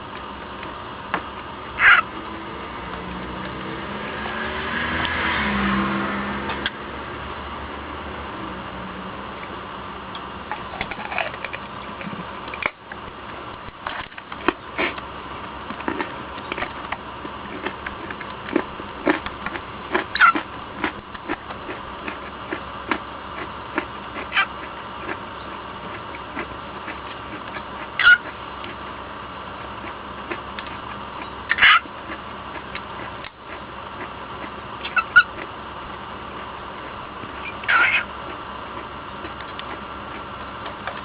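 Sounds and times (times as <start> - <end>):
steady hum: 0.0 - 41.0
cockatiel chirping: 1.8 - 2.1, 28.0 - 28.3, 31.5 - 31.9, 34.8 - 35.3, 37.4 - 38.1
person chewing food: 10.5 - 28.9, 29.5 - 41.0.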